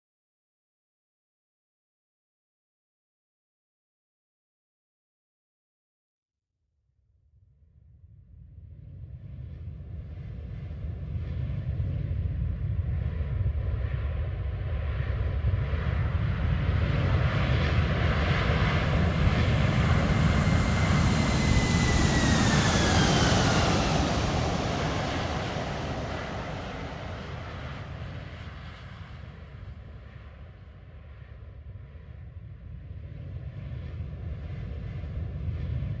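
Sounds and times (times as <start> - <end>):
jet airliner flying past: 9.2 - 36.0.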